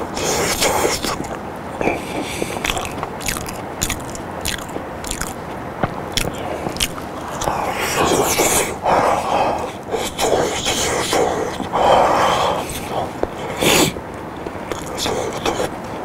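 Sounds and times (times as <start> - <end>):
wet chewing mouth smacks: 0.2 - 5.4, 6.1 - 8.7, 14.7 - 15.6.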